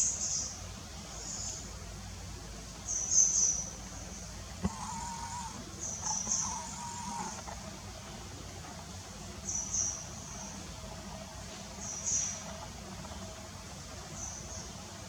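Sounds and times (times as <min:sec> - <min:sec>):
small birds chirping: 0:02.9 - 0:07.8.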